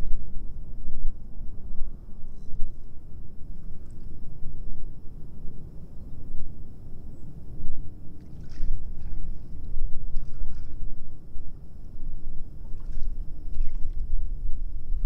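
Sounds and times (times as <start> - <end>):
wind rumbling on microphone: 0.0 - 15.0
water splashing: 8.2 - 10.9, 12.6 - 14.1.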